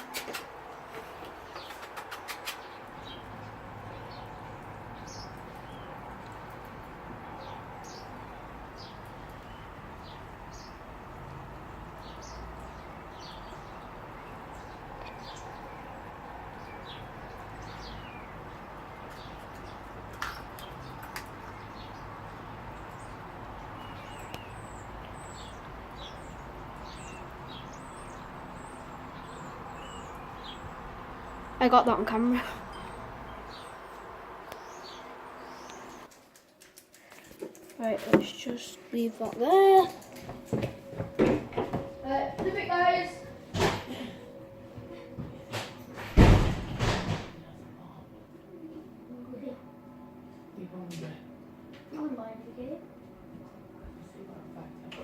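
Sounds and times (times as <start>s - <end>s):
small birds chirping: 0.0s - 36.2s
outdoor ambience: 0.0s - 55.0s
sharp knocks: 45.5s - 47.4s.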